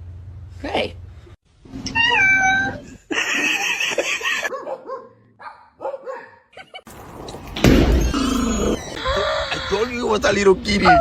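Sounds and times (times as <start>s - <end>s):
loud bump: 6.9s - 9.0s.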